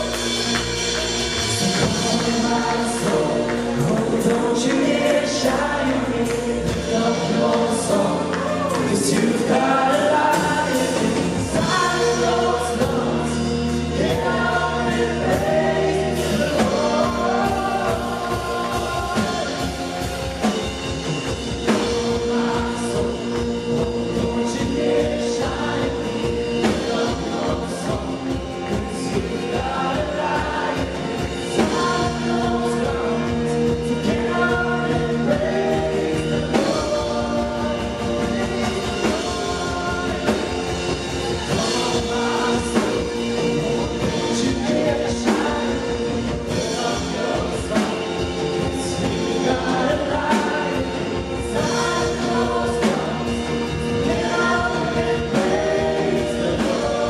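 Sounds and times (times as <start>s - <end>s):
people singing: 0.0s - 57.0s
steady drum beat: 0.0s - 57.0s.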